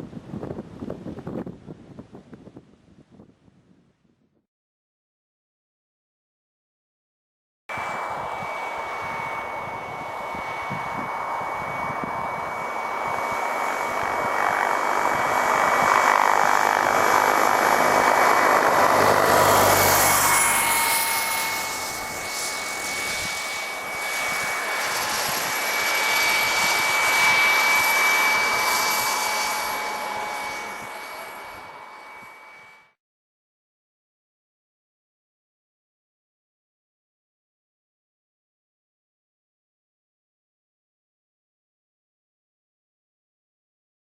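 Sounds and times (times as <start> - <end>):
model helicopter turbine whine: 7.7 - 33.0.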